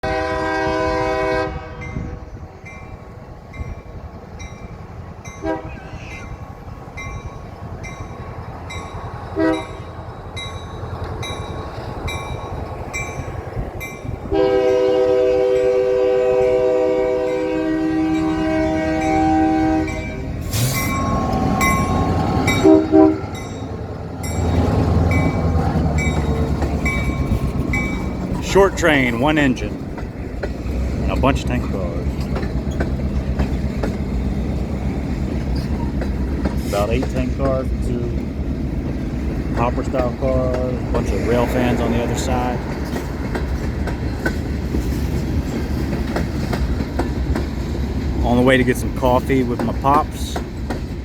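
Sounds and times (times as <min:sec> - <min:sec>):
locomotive horn blasts: 0:00.0 - 0:02.3, 0:05.4 - 0:05.8, 0:09.4 - 0:09.8, 0:14.3 - 0:23.6
train engine and rolling cars: 0:00.0 - 0:51.0
crossing bell ringing: 0:01.8 - 0:38.2.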